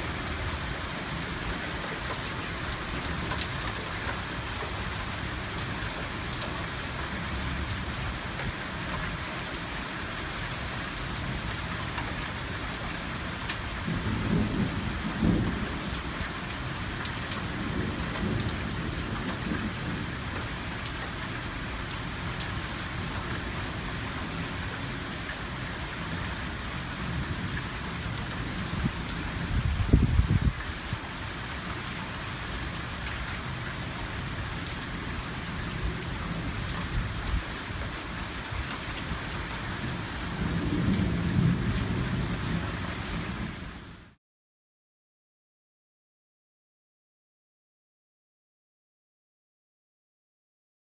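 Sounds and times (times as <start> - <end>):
heavy rain falling: 0.0 - 44.2
thunder rumbling: 39.9 - 43.5.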